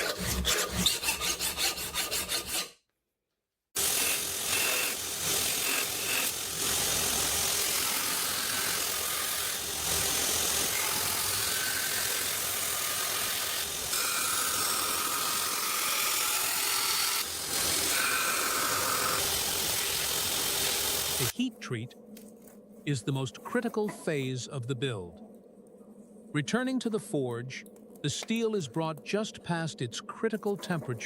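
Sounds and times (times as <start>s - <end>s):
hand file rasping on steel: 0.0s - 2.8s.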